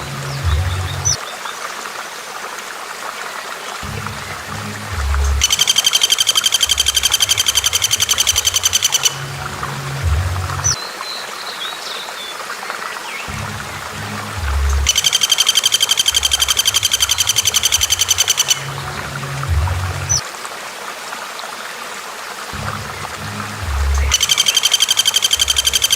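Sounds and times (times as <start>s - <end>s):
looping music backing: 3.8s - 10.8s, 13.3s - 20.2s, 22.5s - 25.9s
bird chirp: 5.3s - 9.2s, 14.7s - 18.8s, 23.7s - 25.9s
bird trilling: 5.4s - 9.2s, 14.8s - 18.7s, 23.9s - 25.9s.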